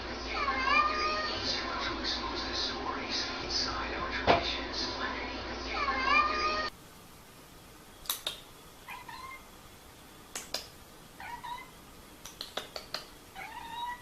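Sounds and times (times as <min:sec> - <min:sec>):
cat meowing: 0:08.9 - 0:09.5, 0:11.2 - 0:11.8, 0:13.4 - 0:14.0
sharp clicks: 0:12.2 - 0:13.1.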